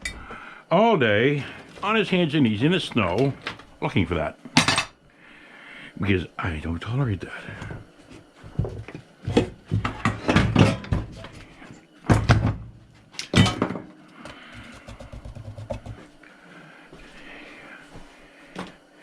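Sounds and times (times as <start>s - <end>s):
tools knocking and clattering: 4.6s - 4.9s, 9.4s - 11.1s.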